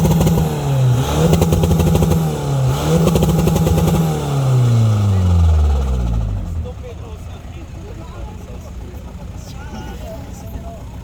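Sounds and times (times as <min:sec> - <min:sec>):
car engine revving hard: 0:00.0 - 0:06.6.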